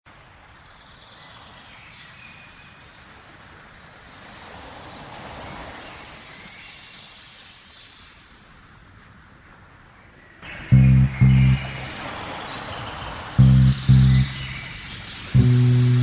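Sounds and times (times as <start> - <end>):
flowing water hiss: 3.0 - 9.0, 11.6 - 16.0
faint high tones: 10.7 - 12.0, 13.4 - 16.0.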